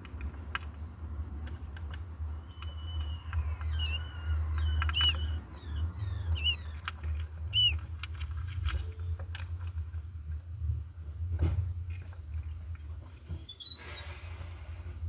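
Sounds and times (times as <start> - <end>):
quail chirping: 2.5 - 8.0.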